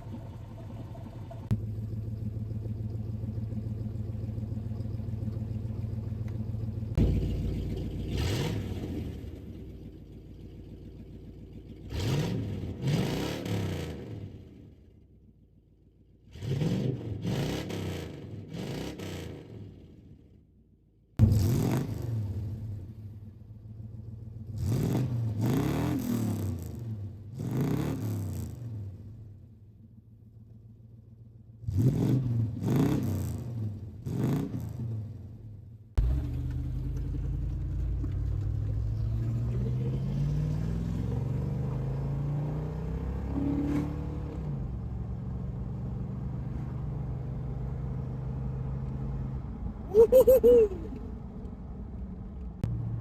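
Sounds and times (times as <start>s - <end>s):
low engine rumble: 0.0s - 12.9s, 22.1s - 25.4s, 34.9s - 43.3s, 44.1s - 53.0s
car exhaust revving: 0.0s - 14.5s, 36.0s - 48.9s.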